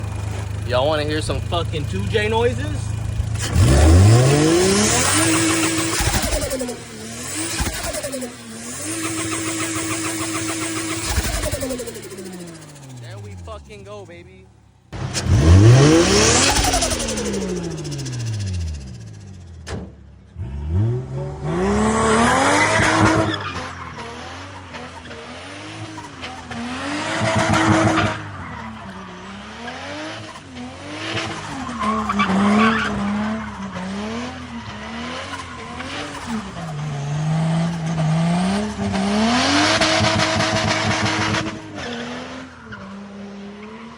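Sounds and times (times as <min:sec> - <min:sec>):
car engine revving hard: 0:00.0 - 0:14.0, 0:15.0 - 0:19.4, 0:20.4 - 0:43.9
turbo rushing noise: 0:02.6 - 0:13.9.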